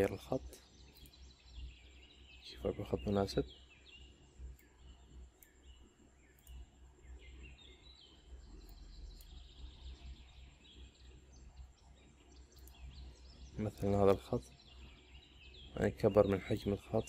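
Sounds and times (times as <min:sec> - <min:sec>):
faint birds chirping: 0:00.0 - 0:17.0
low steady hum: 0:00.0 - 0:17.0
soft clicks: 0:00.8 - 0:01.3, 0:04.5 - 0:05.7, 0:06.3 - 0:06.7, 0:08.6 - 0:09.6, 0:12.5 - 0:13.0.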